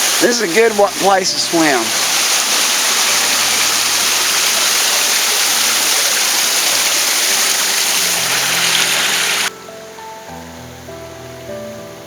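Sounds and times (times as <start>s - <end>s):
river water rushing over rocks: 0.0s - 9.5s.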